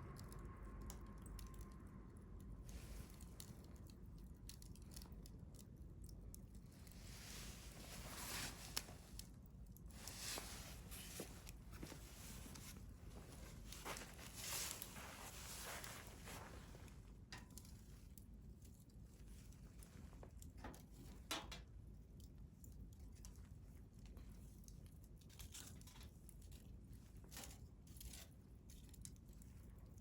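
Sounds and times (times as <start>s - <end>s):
wood fire crackling: 0.1s - 30.0s
fire popping: 2.8s - 18.3s.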